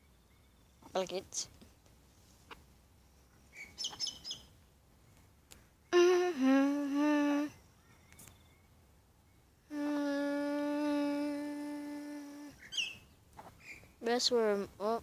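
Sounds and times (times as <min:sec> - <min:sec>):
high bird chirps: 0:03.5 - 0:04.5, 0:12.6 - 0:13.8
person humming a low note: 0:06.0 - 0:07.6, 0:09.7 - 0:12.6.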